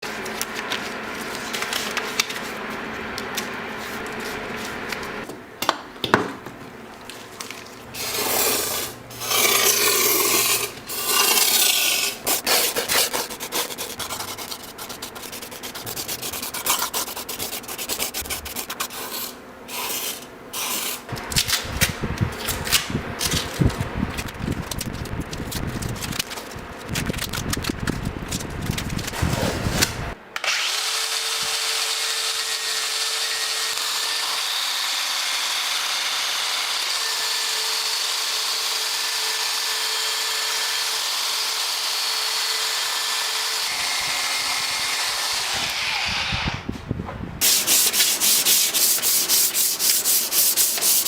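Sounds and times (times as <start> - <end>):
scraping filing and sanding: 7.9 - 21.1, 47.4 - 51.0.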